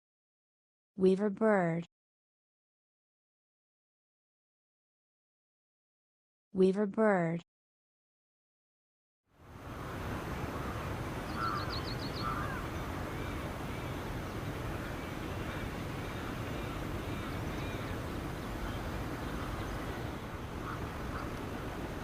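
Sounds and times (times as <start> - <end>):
steady background noise: 9.4 - 22.0
birds chirping and calling: 10.5 - 22.0.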